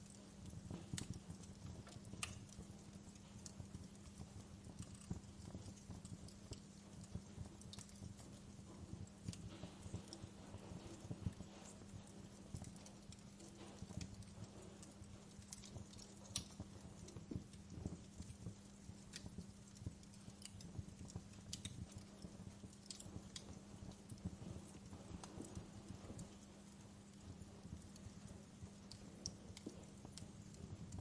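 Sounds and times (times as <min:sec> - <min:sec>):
faint low hum: 0:00.0 - 0:31.0
wood fire crackling: 0:00.0 - 0:31.0.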